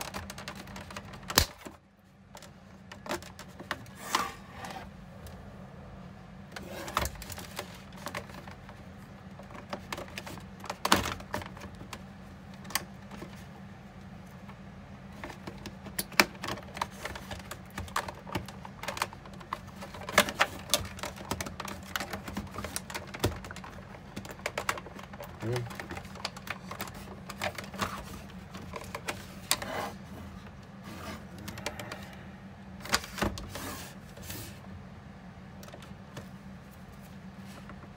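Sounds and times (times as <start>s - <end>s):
plastic parts clicking and knocking: 0.0s - 3.9s, 6.9s - 13.4s, 14.4s - 29.7s
steady low hum: 0.0s - 37.9s.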